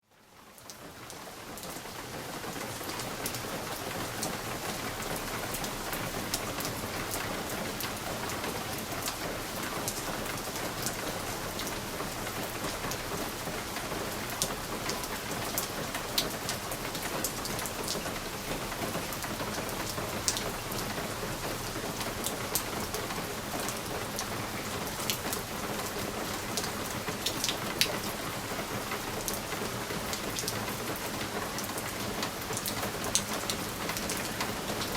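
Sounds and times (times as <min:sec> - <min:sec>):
rain pattering on a window: 0:00.0 - 0:34.9.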